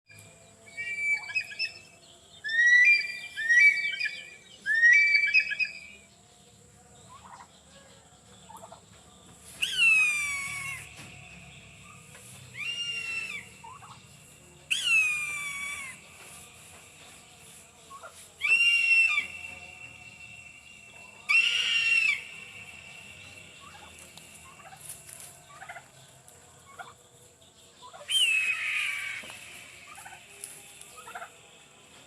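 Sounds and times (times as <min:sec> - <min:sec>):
eagle calling: 0:00.7 - 0:01.8, 0:02.4 - 0:06.0, 0:09.5 - 0:11.2, 0:11.8 - 0:14.0, 0:14.7 - 0:16.4, 0:17.9 - 0:19.6, 0:21.0 - 0:22.5, 0:27.9 - 0:31.3.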